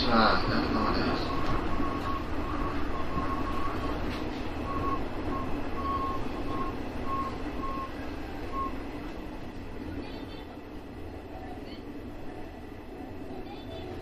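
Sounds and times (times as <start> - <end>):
electric train running rumble: 0.0 - 14.0
high tone beeping: 0.6 - 8.9.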